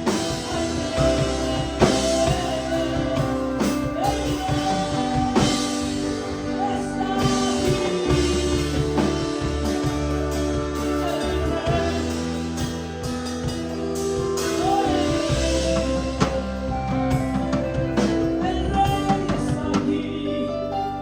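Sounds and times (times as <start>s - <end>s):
person singing: 0.0s - 13.0s, 14.2s - 21.0s
band playing worship music: 0.0s - 21.0s.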